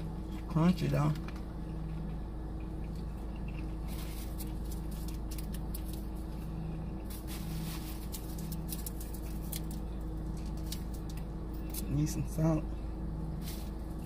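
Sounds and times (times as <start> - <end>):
steady low hum: 0.0 - 14.0
crunchy chewing: 1.2 - 12.0.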